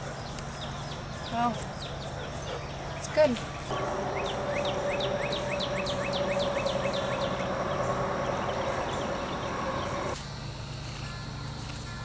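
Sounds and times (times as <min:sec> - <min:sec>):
bird chirping: 0:00.4 - 0:10.2
steady hum: 0:03.7 - 0:10.2.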